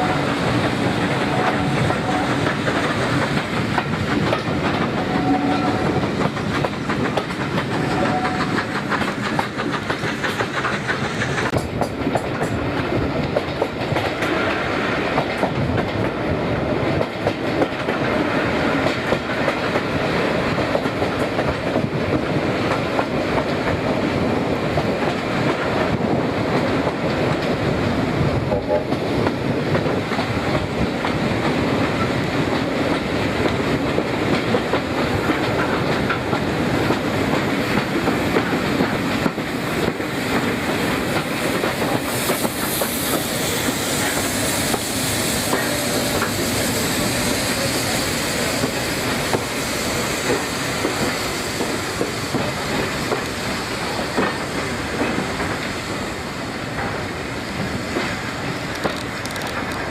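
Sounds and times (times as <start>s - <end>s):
train wheels clickety-clack: 0.0s - 59.9s
high hiss: 40.1s - 58.4s.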